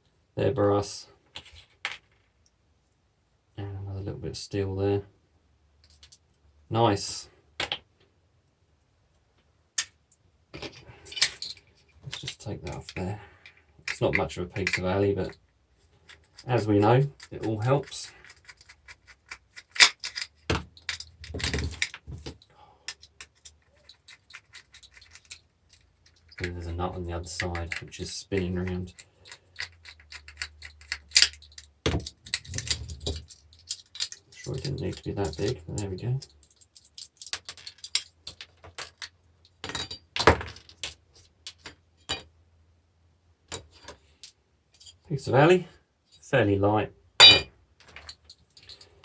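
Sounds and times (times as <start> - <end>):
hand tools clicking and scraping: 10.6 - 39.1
small metal parts clinking: 10.6 - 42.3, 47.2 - 49.0.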